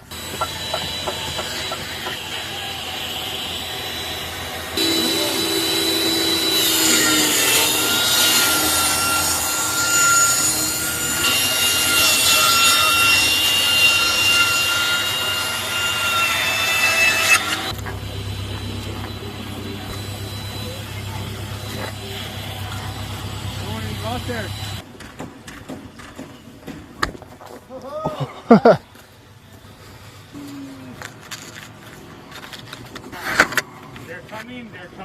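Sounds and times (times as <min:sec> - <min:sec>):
power tool cutting wood: 0:00.0 - 0:24.8.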